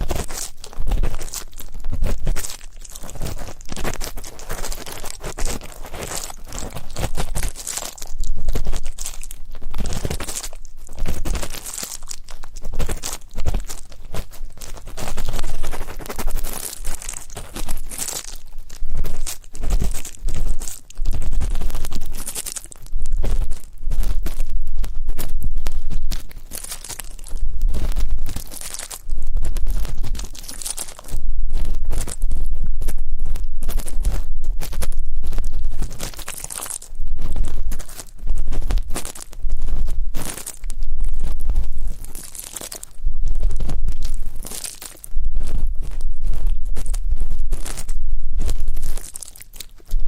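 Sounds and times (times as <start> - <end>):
ear pick scraping microphone: 22.9 - 42.3, 42.9 - 49.2.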